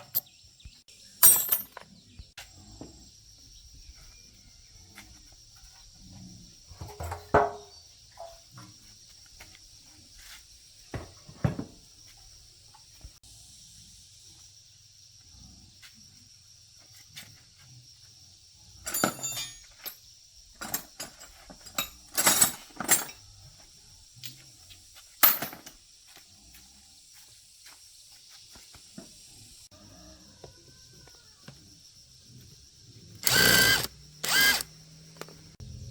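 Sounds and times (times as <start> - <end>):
metal tools clinking: 1.2 - 1.9, 18.9 - 20.0, 20.6 - 23.2, 25.2 - 25.8.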